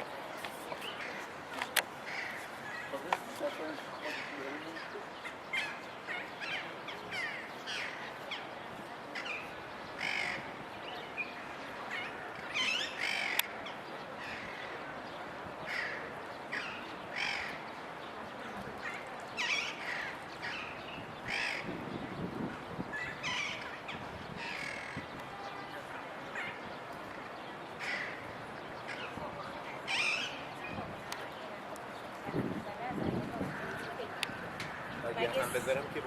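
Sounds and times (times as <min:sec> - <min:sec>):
steady background noise: 0:00.0 - 0:36.0.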